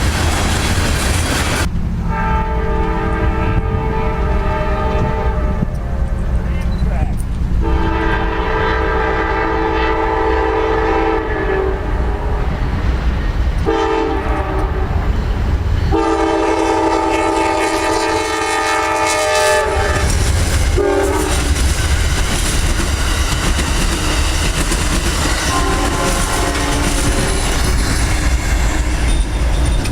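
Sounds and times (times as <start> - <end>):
passing train rumble: 0.0 - 29.9
locomotive air horn blasts: 2.0 - 6.3, 7.6 - 12.5, 13.6 - 15.1, 15.9 - 21.5, 25.4 - 27.4
wheels clicking over rail joints: 20.0 - 29.9.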